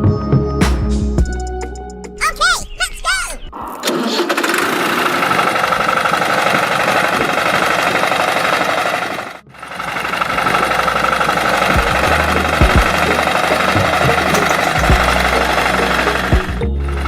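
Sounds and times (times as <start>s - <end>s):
small engine rattling knock: 4.4s - 9.3s, 10.0s - 16.6s.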